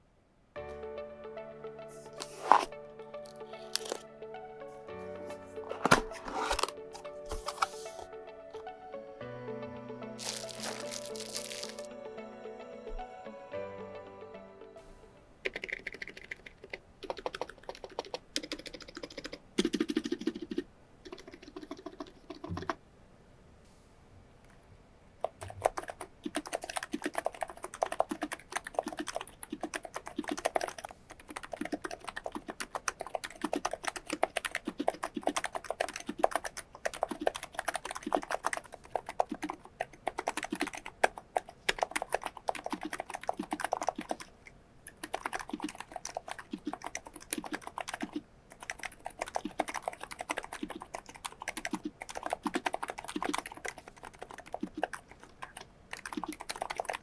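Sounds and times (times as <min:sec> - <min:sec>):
keyboard typing: 0:02.0 - 0:04.0, 0:05.2 - 0:08.7, 0:10.2 - 0:11.9, 0:15.4 - 0:22.8, 0:25.2 - 0:57.0.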